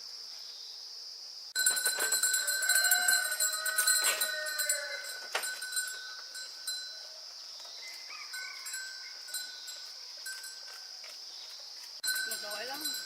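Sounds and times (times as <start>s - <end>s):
small bell ringing: 1.6s - 7.1s, 8.3s - 10.8s, 12.0s - 13.0s.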